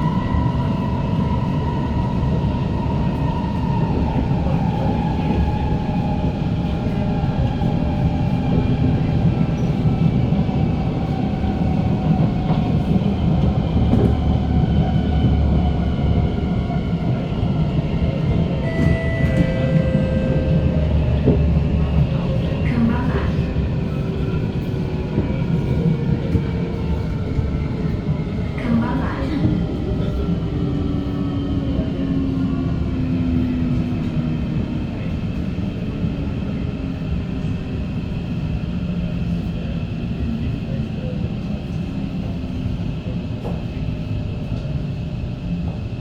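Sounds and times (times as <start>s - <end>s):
train wheels rumbling on track: 0.0s - 46.0s
short high tones: 18.6s - 21.2s.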